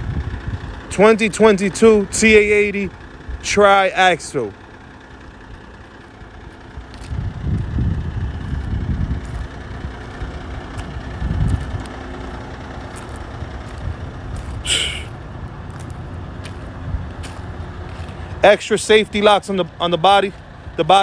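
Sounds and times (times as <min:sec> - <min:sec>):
diesel truck engine running: 0:00.0 - 0:21.0
air release hiss: 0:14.7 - 0:15.1.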